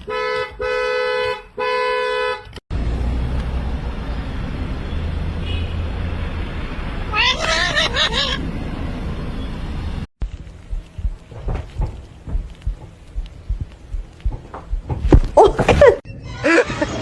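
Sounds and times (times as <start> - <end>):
low rumbling noise: 2.7 - 16.0
animal crying: 7.1 - 8.5.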